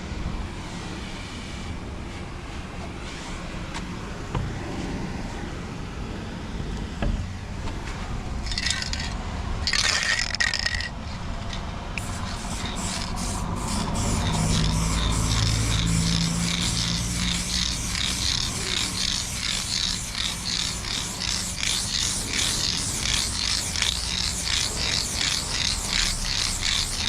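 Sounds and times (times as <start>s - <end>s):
scraping handling noise: 7.6s - 27.0s
spray can hissing: 8.5s - 10.9s, 12.0s - 27.0s
rapid ticks: 12.0s - 27.0s.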